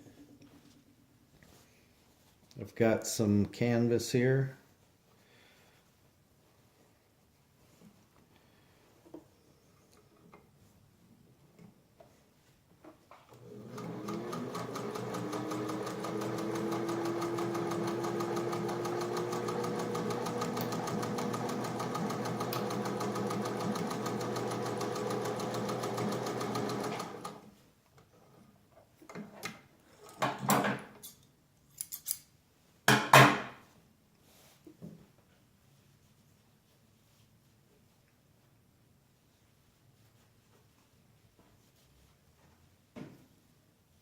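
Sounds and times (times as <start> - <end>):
sewing machine stitching: 13.4 - 27.5.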